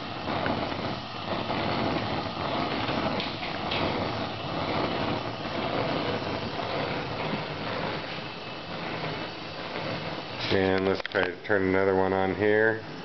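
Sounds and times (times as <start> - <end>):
gas burner flame rushing: 0.0 - 13.0.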